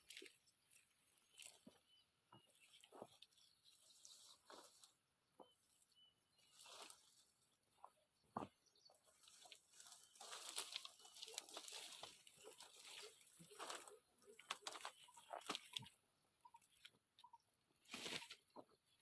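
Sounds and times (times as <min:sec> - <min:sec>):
rustling leafy branches: 0:09.1 - 0:15.9, 0:17.9 - 0:18.4.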